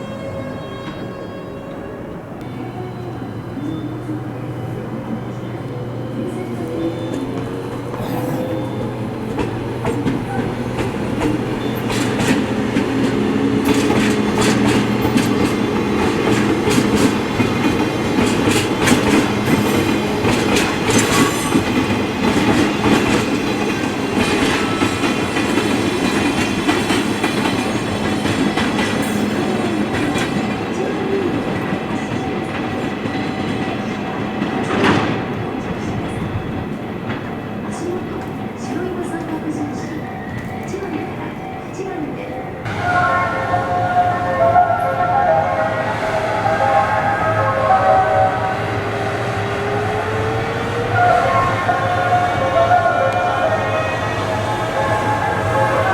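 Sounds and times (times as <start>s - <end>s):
freight train hum: 0.0s - 55.9s
wheels clacking over rail joints: 7.1s - 35.5s.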